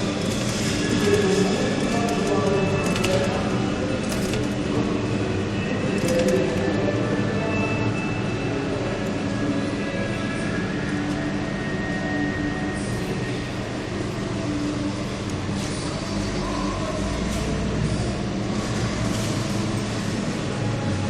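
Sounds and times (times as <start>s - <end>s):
arcade machine hum: 0.0s - 21.0s.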